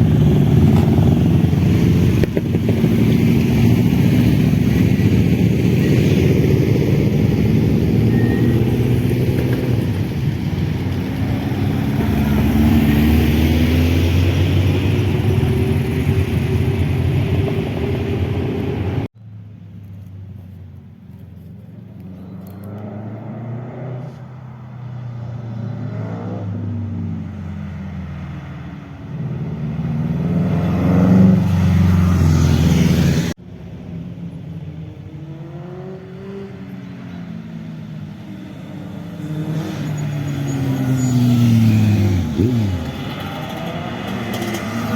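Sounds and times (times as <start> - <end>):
motorcycle engine revving: 0.0 - 19.1, 38.6 - 44.9.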